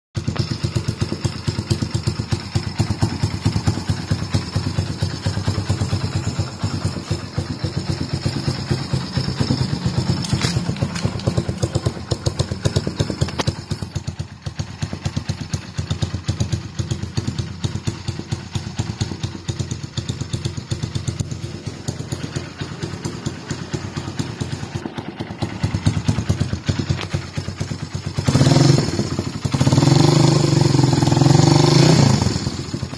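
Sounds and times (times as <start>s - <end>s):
motorcycle engine idling: 0.2s - 32.9s
engine revving: 28.1s - 32.9s.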